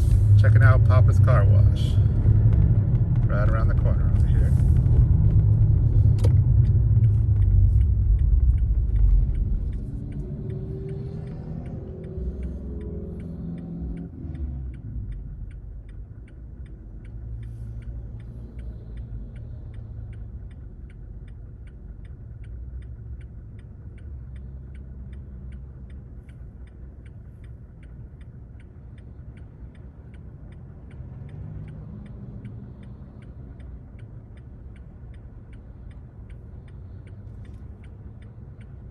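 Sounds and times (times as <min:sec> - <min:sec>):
car engine and road rumble: 0:00.0 - 0:38.9
turn signal clicking: 0:00.1 - 0:38.9.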